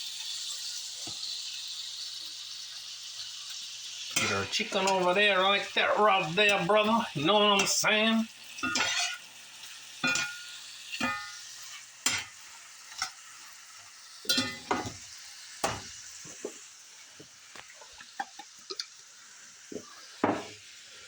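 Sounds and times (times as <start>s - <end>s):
food sizzling in a skillet: 0.0s - 21.0s
utensil scraping a pan: 8.6s - 9.2s, 10.0s - 12.3s, 14.3s - 15.0s.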